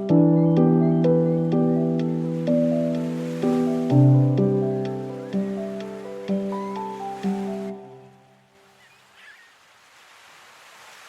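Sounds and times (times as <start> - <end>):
calm slow instrumental music: 0.0 - 8.6.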